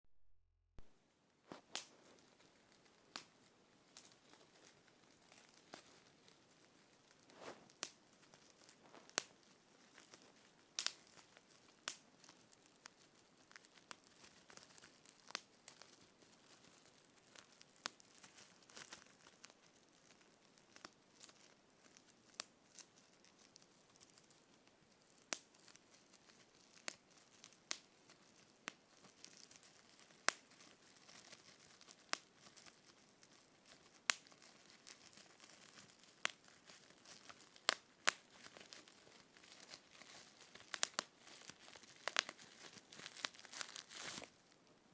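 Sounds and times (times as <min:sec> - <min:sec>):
faint rustling: 0:00.8 - 0:22.0, 0:22.7 - 0:44.9.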